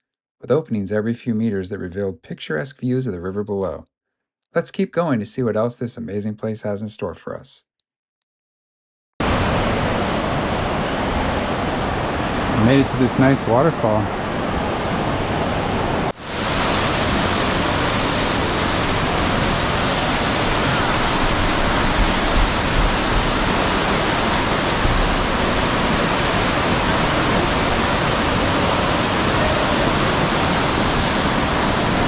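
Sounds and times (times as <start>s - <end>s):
waterfall rushing: 9.2s - 32.0s.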